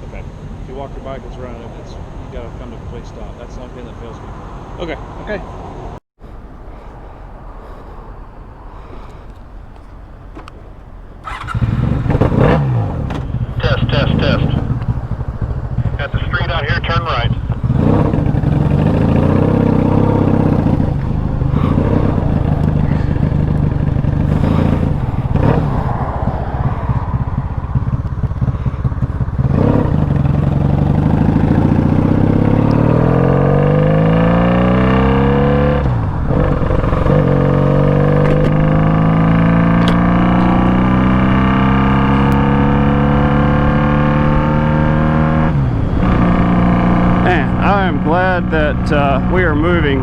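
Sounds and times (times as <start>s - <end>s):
motorcycle engine accelerating: 6.2s - 50.0s.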